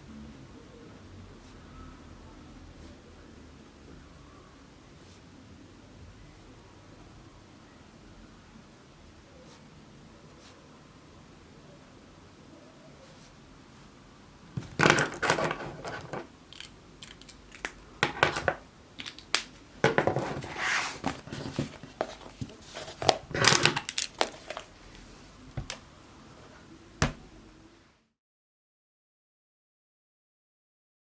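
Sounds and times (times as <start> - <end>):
crinkly material rustling: 19.0 - 25.8.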